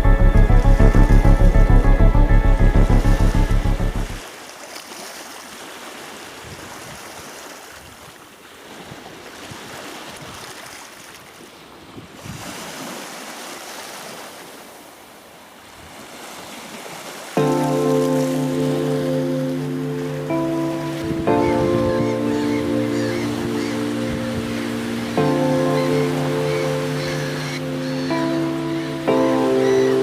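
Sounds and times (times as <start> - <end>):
music with a beat: 0.0 - 4.2
sea waves washing ashore: 0.0 - 30.0.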